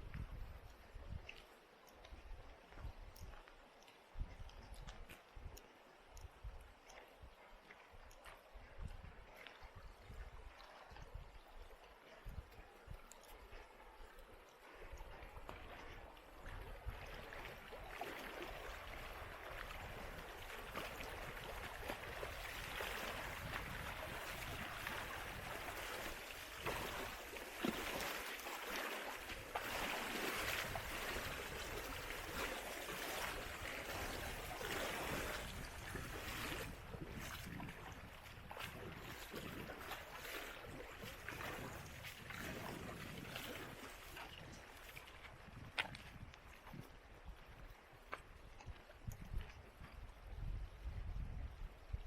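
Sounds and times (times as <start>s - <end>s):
river water rushing: 17.3s - 35.5s.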